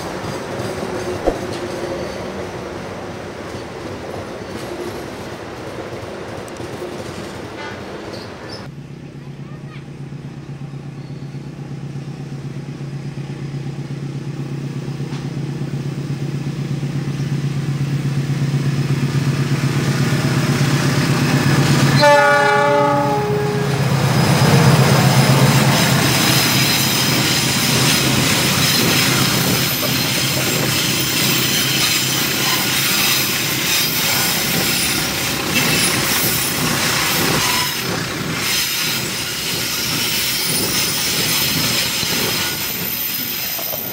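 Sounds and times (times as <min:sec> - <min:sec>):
freight wagons wheel-on-rail noise: 0:00.0 - 0:43.9
train horn blast: 0:22.0 - 0:24.0.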